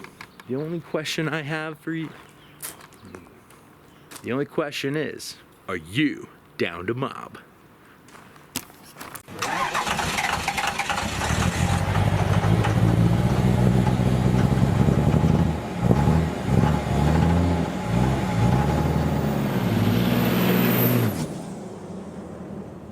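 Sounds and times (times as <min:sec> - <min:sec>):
vehicle engine starting and revving: 0:09.3 - 0:22.9.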